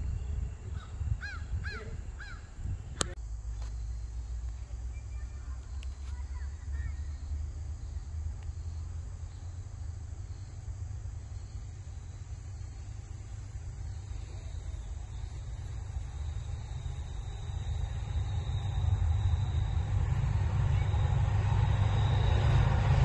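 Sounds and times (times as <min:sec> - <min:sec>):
bird calling: 0:00.7 - 0:02.7, 0:11.7 - 0:23.0
steady low rumble: 0:12.9 - 0:23.0.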